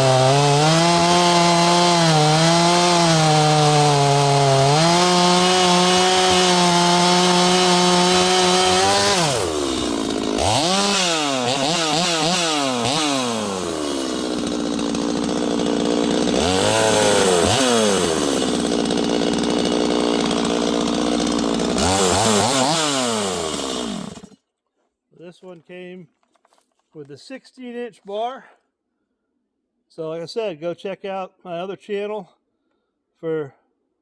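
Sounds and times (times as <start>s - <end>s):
chainsaw revving: 0.0s - 24.4s.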